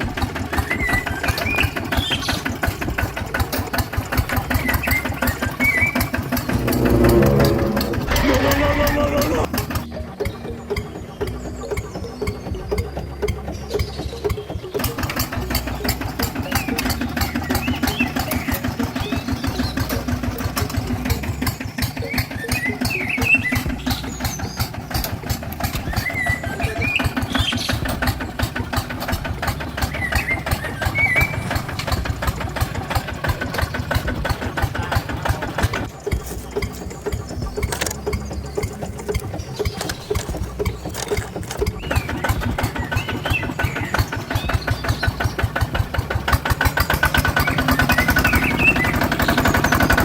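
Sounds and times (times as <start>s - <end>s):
small motor pulsing: 0.0s - 50.0s.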